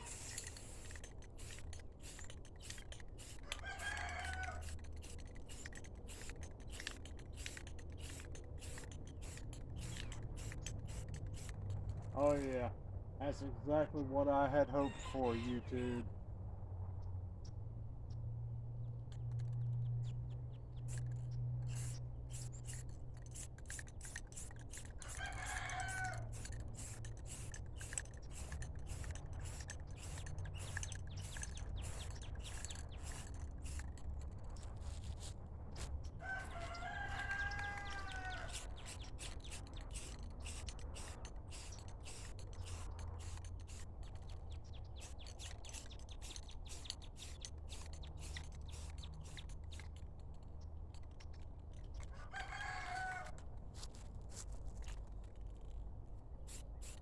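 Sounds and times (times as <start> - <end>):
short scratchy clicks: 0.0 - 12.6
rooster crowing: 3.4 - 4.8, 14.7 - 15.6, 25.0 - 26.4, 36.2 - 38.7, 52.1 - 53.4.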